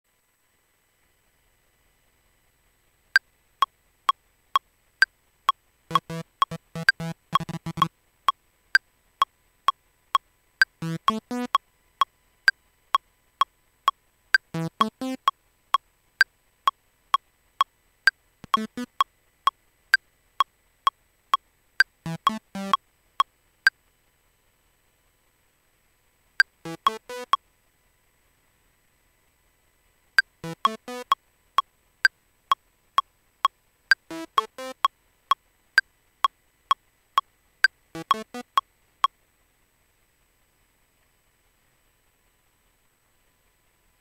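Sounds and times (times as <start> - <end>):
metronome clicking: 5.9 - 7.9, 10.8 - 11.6, 18.4 - 19.0, 38.0 - 38.6
synthesizer plucky notes: 5.9 - 7.9, 10.8 - 11.6, 14.6 - 15.3, 18.4 - 19.0, 22.1 - 22.8, 26.7 - 27.4, 30.4 - 31.2, 34.1 - 34.9, 38.0 - 38.6.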